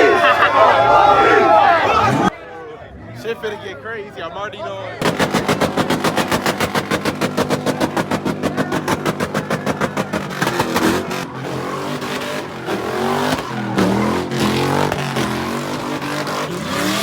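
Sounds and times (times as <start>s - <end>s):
car engines revving: 0.0s - 17.0s
rapid loud pops: 5.0s - 17.0s.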